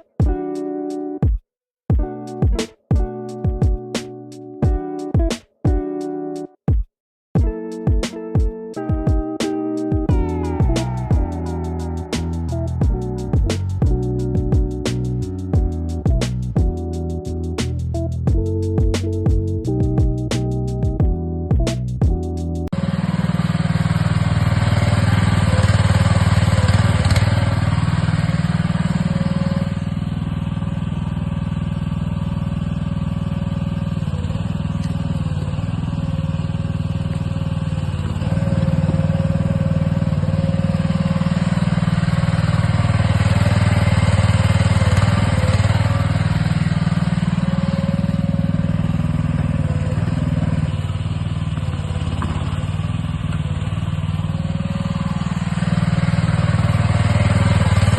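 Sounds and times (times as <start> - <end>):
excavator engine under load: 22.7 - 57.9.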